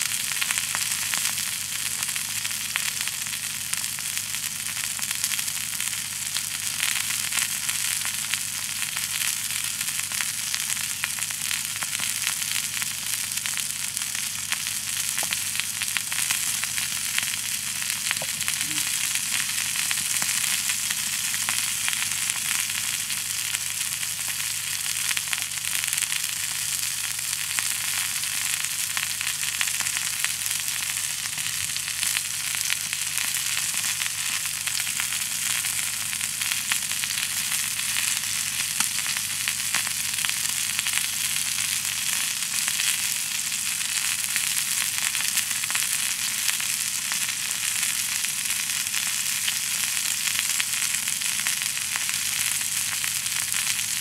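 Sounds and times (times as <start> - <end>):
food sizzling in skillet: 0.0 - 54.0.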